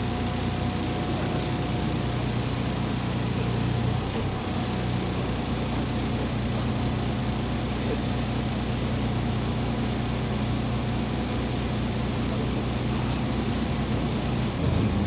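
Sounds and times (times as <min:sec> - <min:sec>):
bus engine humming inside cabin: 0:00.0 - 0:15.0.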